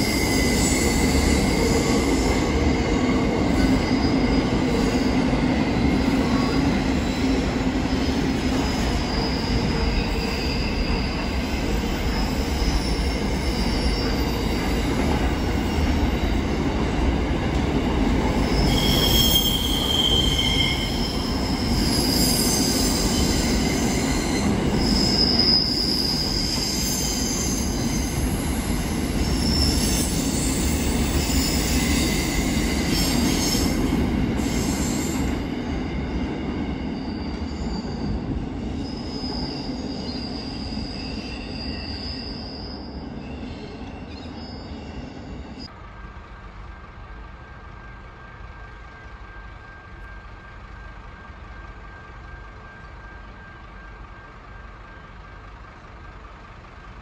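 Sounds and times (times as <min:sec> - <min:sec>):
high wheel squeals: 0:00.0 - 0:16.7, 0:18.3 - 0:45.7
train wheels rumbling: 0:00.0 - 0:57.0.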